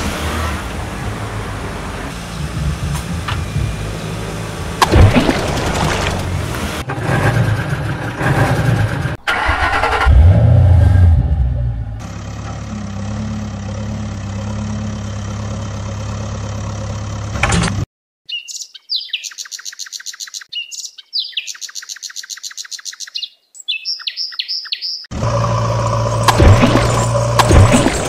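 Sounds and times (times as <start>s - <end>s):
vehicle engine idling: 12.0s - 17.4s
bird singing high trills: 18.3s - 25.1s.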